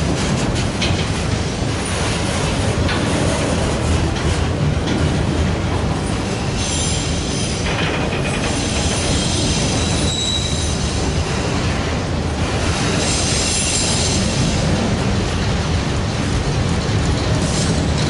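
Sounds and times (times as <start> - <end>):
train wheels rumbling on rail: 0.0 - 18.0
high wheel squeals: 8.4 - 11.0.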